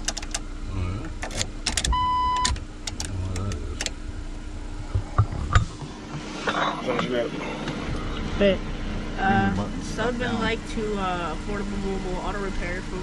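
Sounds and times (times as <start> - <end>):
ignition switch clicks: 0.0 - 4.0
electronic warning beep: 1.9 - 2.6
low rumble: 3.0 - 13.0.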